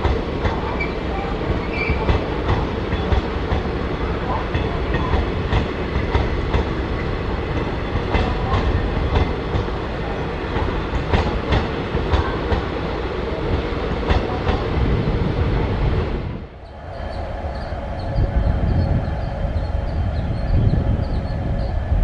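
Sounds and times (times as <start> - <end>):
train wheels clacking over rail joints: 0.0 - 12.9, 13.5 - 14.6.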